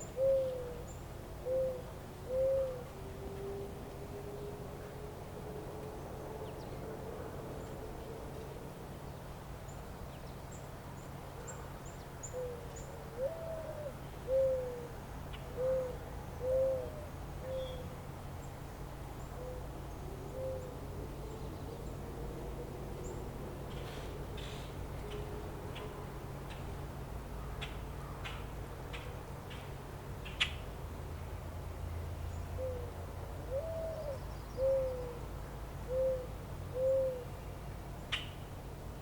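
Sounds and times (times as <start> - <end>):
bird hooting calls: 0.0 - 3.7, 12.2 - 17.9, 19.2 - 20.8, 32.6 - 32.9, 33.5 - 35.2, 35.8 - 37.4.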